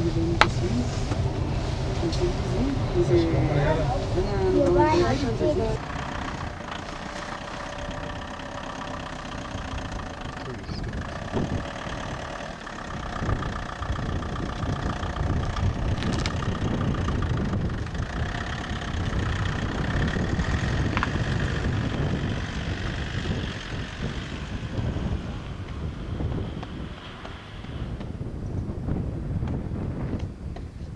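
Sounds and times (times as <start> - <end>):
vehicle engine running: 0.0 - 30.9.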